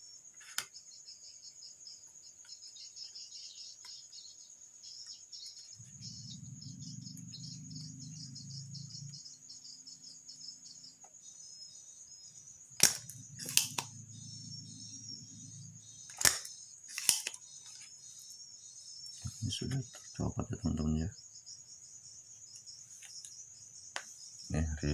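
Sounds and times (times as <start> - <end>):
crickets chirping: 0.0 - 24.9
sharp snaps: 12.8 - 13.9, 16.1 - 17.4.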